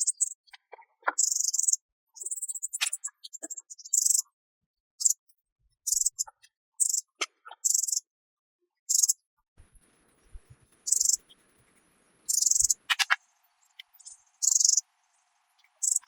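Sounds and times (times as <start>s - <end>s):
insects chirping: 5.9s - 6.2s, 6.8s - 7.0s, 8.9s - 9.2s, 10.8s - 11.4s, 12.2s - 16.0s.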